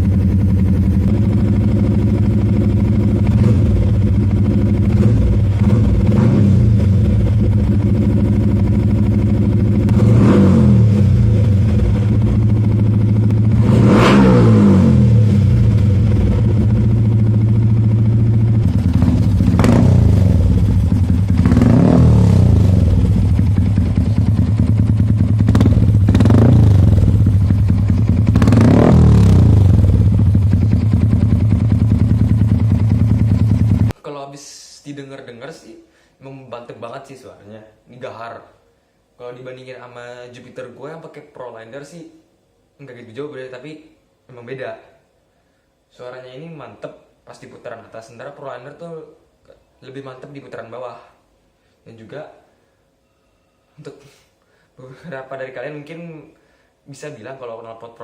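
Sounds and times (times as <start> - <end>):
motorcycle engine idling and revving: 0.0 - 34.0.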